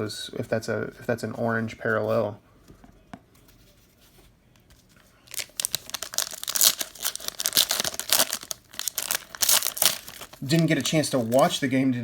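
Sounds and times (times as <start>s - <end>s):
plastic wrapper crinkling and ripping: 5.3s - 11.6s.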